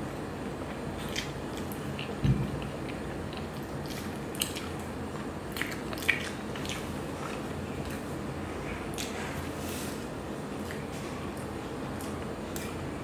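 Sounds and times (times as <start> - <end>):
person chewing donut: 0.6 - 9.7
low thump: 2.2 - 2.6.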